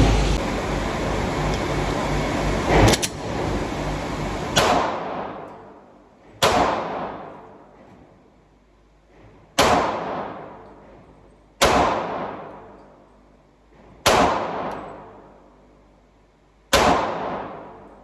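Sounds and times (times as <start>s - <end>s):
pistol shots echoing: 6.4s - 7.7s, 9.6s - 10.7s, 11.6s - 12.8s, 14.0s - 15.4s, 16.7s - 18.0s.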